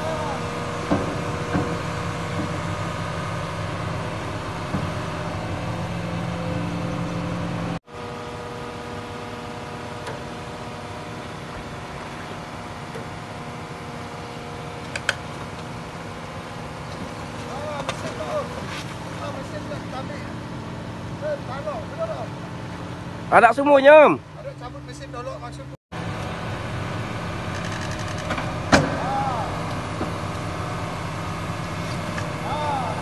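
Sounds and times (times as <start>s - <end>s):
excavator diesel engine running: 0.0s - 33.0s
short knocks: 0.4s - 6.1s.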